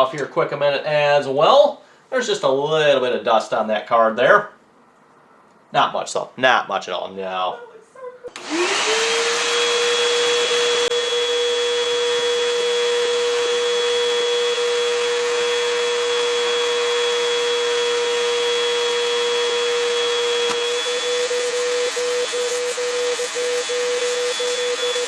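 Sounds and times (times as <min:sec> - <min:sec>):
vacuum cleaner motor whine: 0:08.3 - 0:25.0.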